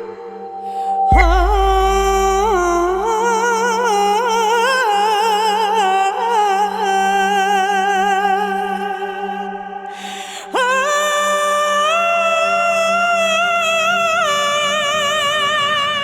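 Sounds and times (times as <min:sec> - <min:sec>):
person singing wordless melody: 0:00.0 - 0:16.0
low drone: 0:01.1 - 0:03.3.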